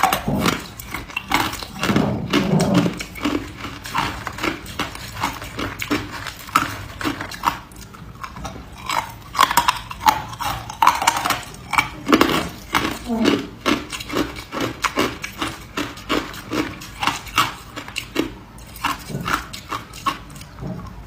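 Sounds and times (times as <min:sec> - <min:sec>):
ice crunching between teeth: 0:00.0 - 0:20.6.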